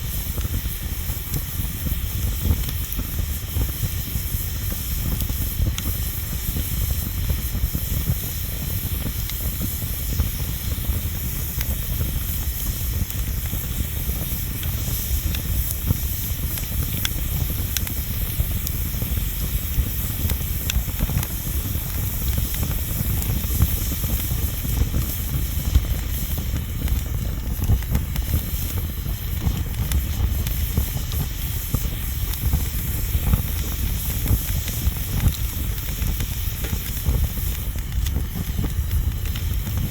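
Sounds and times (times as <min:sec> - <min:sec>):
bonfire hissing and rumbling: 0:00.0 - 0:39.9
fire crackles and pops: 0:00.0 - 0:39.9.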